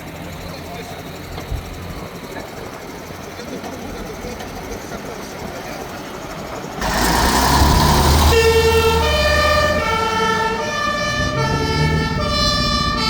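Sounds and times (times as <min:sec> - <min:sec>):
truck engine rumble: 0:00.0 - 0:13.0
loud rush of noise: 0:06.8 - 0:09.8
two-tone fire engine siren: 0:06.8 - 0:13.0.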